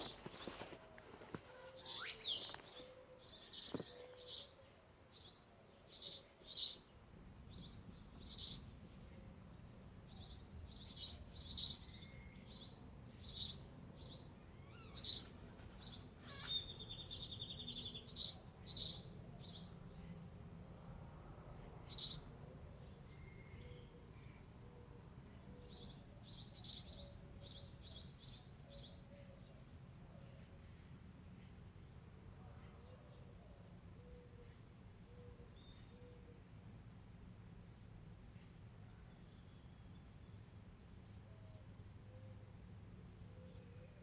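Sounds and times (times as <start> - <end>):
birds chirping: 0.0 - 20.1.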